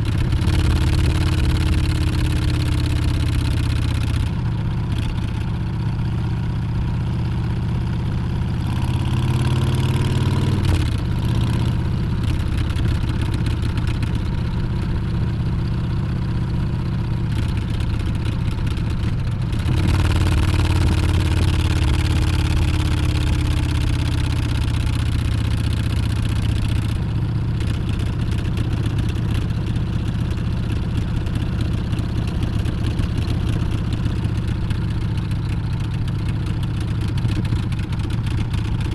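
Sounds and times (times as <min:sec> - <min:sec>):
motorcycle engine revving: 0:08.8 - 0:13.6, 0:17.3 - 0:31.9.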